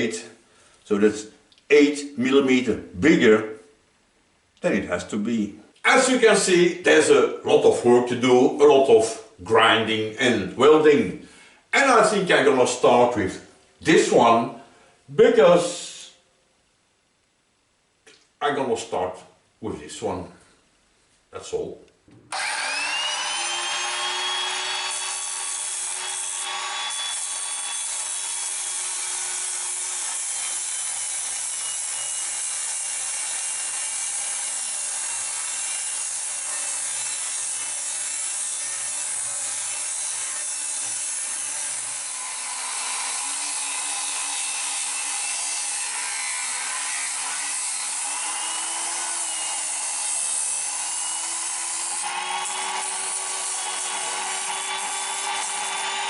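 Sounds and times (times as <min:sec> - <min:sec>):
angle grinder grinding steel: 0:22.3 - 0:56.0.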